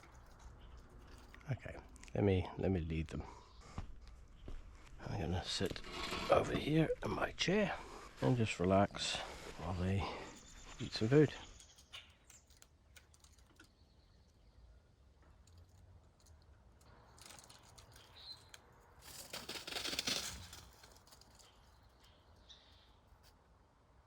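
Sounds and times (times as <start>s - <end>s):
rustling: 0.0s - 2.1s, 3.6s - 13.7s, 15.5s - 23.4s
faint bird chirps: 8.8s - 15.1s, 17.8s - 18.6s, 21.4s - 23.3s.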